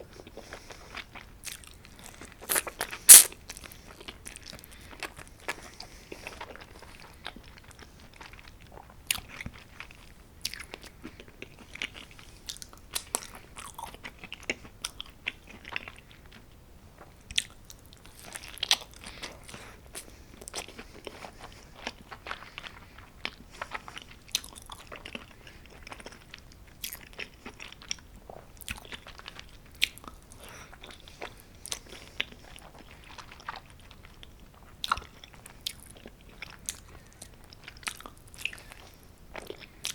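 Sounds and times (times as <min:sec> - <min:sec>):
chewing with crunchy clicks: 0:00.1 - 0:39.9
biting crisp pizza crust: 0:02.4 - 0:03.4.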